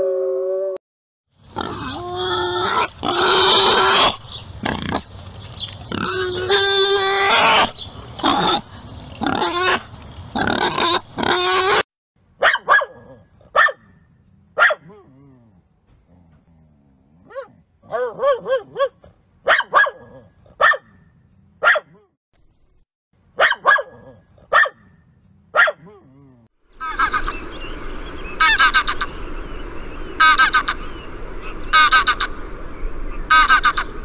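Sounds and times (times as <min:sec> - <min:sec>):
wild boar grunting and squealing: 0:01.4 - 0:11.8
dog barking: 0:12.4 - 0:13.9, 0:14.6 - 0:15.0, 0:17.3 - 0:21.0, 0:21.6 - 0:22.1, 0:23.4 - 0:24.9, 0:25.5 - 0:26.0.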